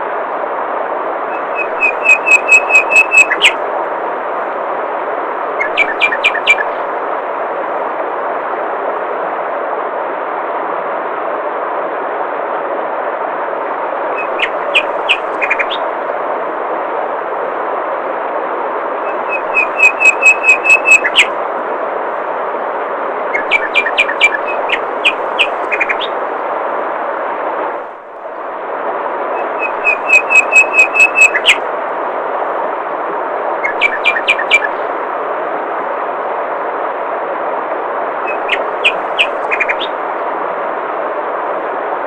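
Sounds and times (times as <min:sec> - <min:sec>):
songbird singing: 0:01.3 - 0:03.6, 0:05.5 - 0:06.9, 0:14.1 - 0:16.0, 0:19.0 - 0:21.4, 0:23.3 - 0:26.2, 0:29.3 - 0:31.6, 0:33.6 - 0:34.9, 0:38.2 - 0:40.0.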